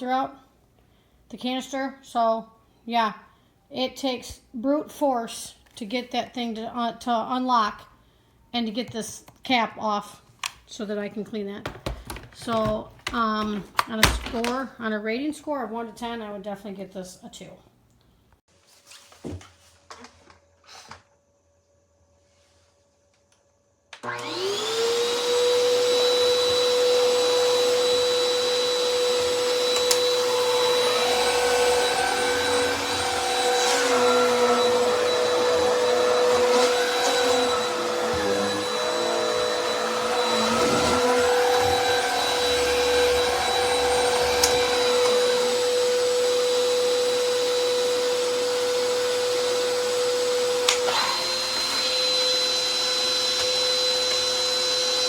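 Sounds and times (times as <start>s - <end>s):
vacuum cleaner whining: 24.0s - 55.0s.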